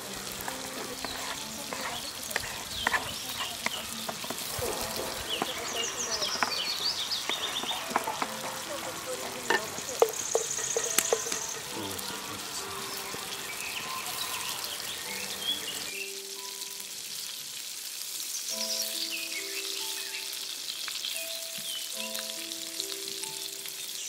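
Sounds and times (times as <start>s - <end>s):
wooden spatula stirring: 0.0s - 12.2s
birds chirping: 0.0s - 16.3s, 18.2s - 24.0s
high hiss: 0.0s - 24.0s
soft music of held notes: 0.0s - 24.0s
vegetables sizzling in a pot: 0.0s - 24.0s.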